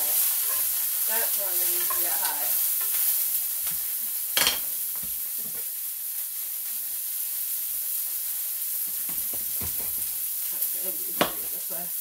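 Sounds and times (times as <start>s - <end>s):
vegetables sizzling in oil: 0.0s - 12.0s
knife knocking on cutting board: 9.1s - 10.0s.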